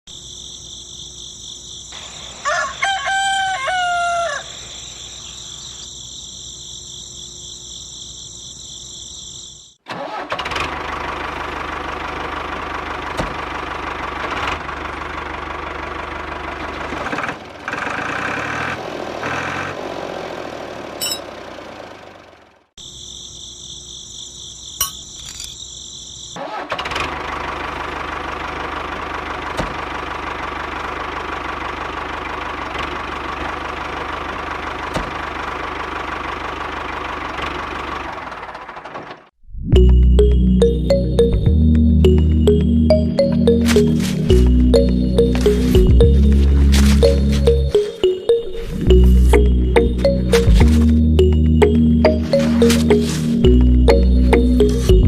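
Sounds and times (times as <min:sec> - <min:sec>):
rooster crowing: 0:02.3 - 0:05.0
engine running noisily rattling: 0:10.1 - 0:22.7, 0:26.9 - 0:39.3.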